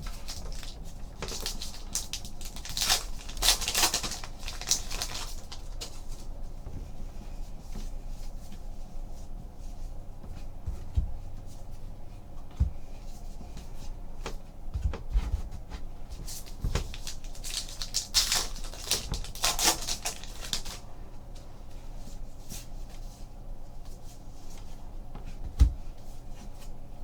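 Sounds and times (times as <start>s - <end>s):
wrappers crinkling and tearing: 0.0s - 6.2s, 16.4s - 20.8s.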